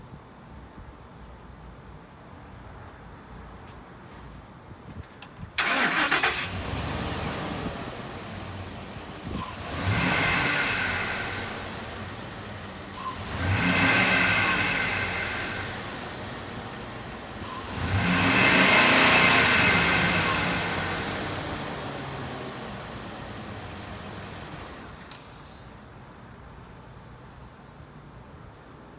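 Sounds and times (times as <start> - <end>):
engine idling and revving: 5.6 - 25.6
truck engine starting: 5.6 - 25.7.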